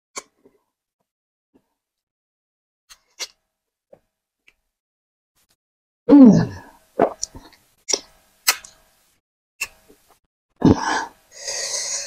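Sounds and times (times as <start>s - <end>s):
rough throat and breath noises: 10.6s - 12.0s.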